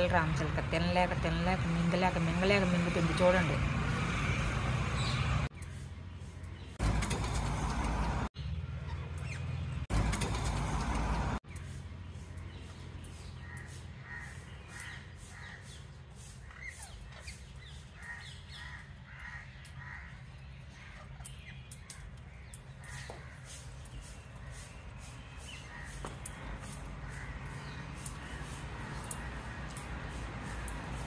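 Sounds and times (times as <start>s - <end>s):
harsh bird calls: 11.5s - 31.0s.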